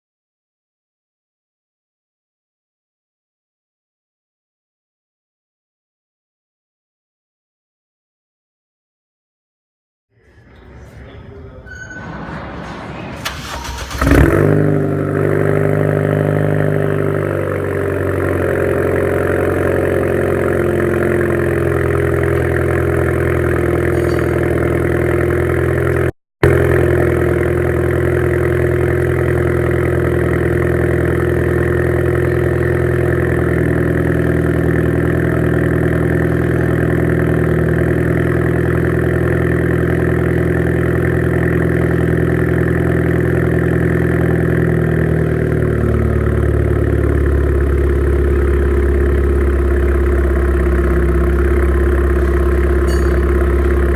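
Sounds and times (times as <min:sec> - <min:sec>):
car engine starting and revving: 0:12.1 - 0:53.9
car engine idling: 0:12.4 - 0:53.9.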